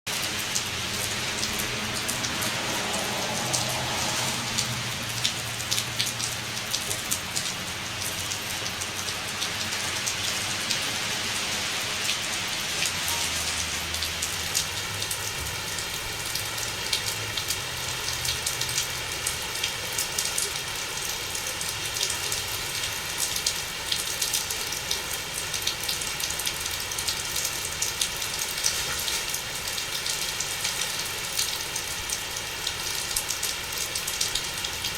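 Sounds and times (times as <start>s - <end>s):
heavy rain pattering: 0.1s - 34.9s.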